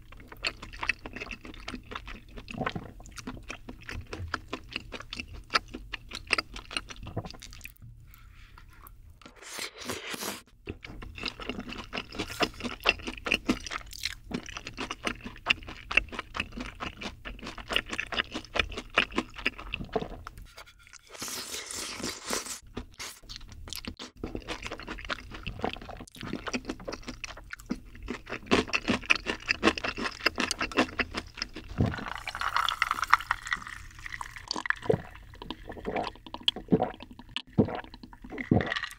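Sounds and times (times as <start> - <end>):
chewing crunchy food: 0.0 - 7.8, 9.7 - 20.4, 21.1 - 38.9
wet mouth sounds: 29.4 - 38.9.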